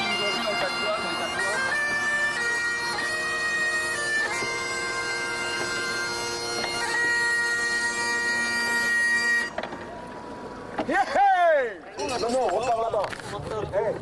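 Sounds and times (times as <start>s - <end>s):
bagpipe with bombarde playing: 0.0s - 10.8s.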